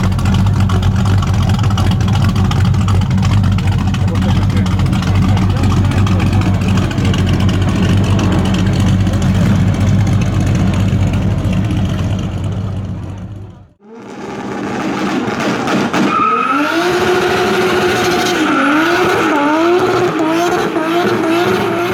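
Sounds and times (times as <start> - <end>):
vee eight engine idling: 0.0 - 13.8.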